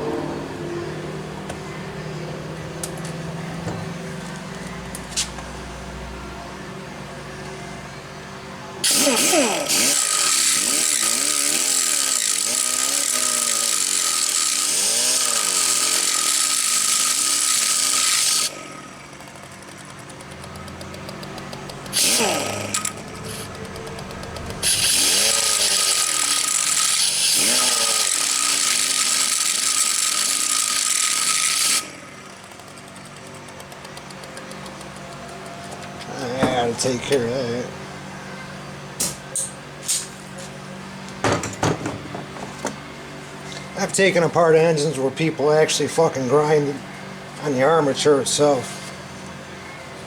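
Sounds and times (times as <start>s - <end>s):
power grinder grinding metal: 8.8s - 37.7s.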